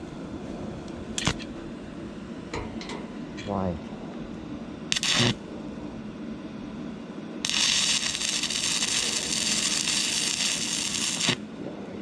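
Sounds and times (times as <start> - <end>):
welding arc crackling hiss: 1.2 - 1.4, 4.9 - 5.4, 7.4 - 11.4.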